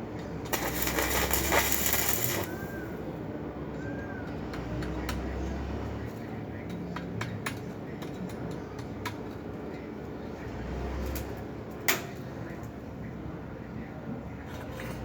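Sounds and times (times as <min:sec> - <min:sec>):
clinks and taps of hard objects: 0:06.7 - 0:09.4.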